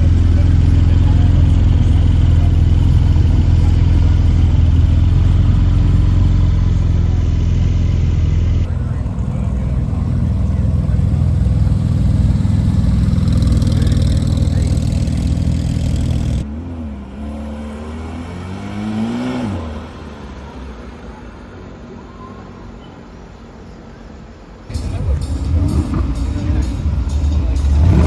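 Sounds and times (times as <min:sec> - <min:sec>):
sports car engine revving: 0:00.0 - 0:20.5, 0:24.7 - 0:28.0.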